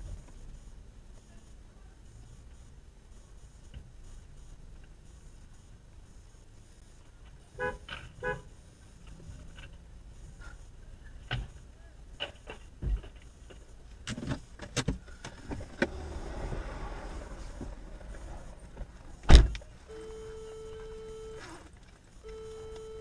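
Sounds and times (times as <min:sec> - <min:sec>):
car and road noise hum: 0:00.0 - 0:23.0
car horn toots: 0:07.6 - 0:08.5, 0:15.9 - 0:21.6, 0:22.2 - 0:23.0.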